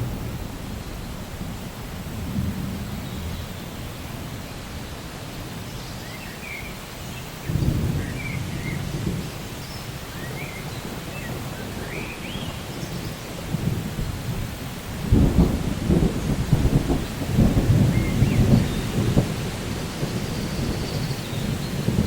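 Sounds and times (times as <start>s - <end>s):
low thunder rumble: 0.0s - 5.6s, 7.4s - 22.0s
steady rain: 0.0s - 22.0s
birds chirping: 19.9s - 22.0s.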